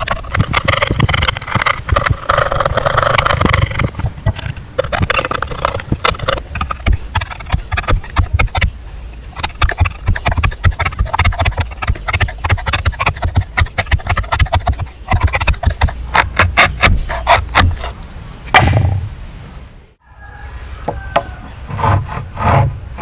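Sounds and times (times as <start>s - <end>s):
hand tool knocking and scraping wood: 0.0s - 17.9s.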